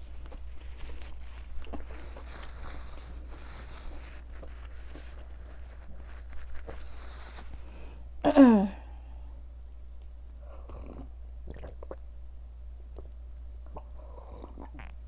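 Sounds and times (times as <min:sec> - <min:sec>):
person chewing food: 0:00.0 - 0:06.8.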